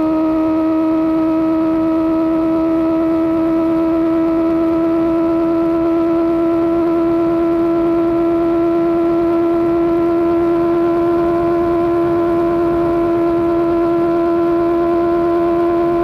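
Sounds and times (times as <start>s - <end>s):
motorcycle engine droning: 0.0s - 16.0s.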